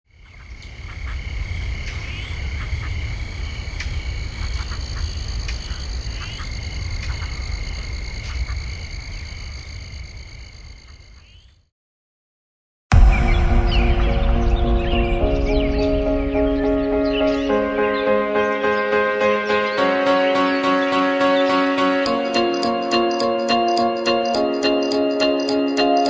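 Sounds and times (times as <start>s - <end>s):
low rumble: 12.9s - 18.3s.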